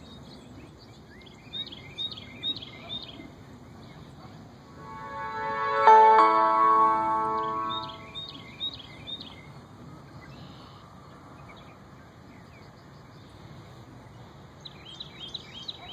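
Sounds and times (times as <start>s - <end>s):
outdoor background hiss: 0.0s - 15.9s
ringing chime-like tones: 4.8s - 8.2s.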